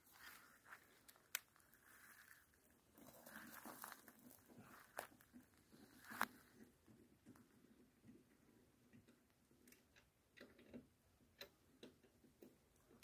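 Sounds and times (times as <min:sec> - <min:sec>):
faint rustling: 0:00.0 - 0:07.6.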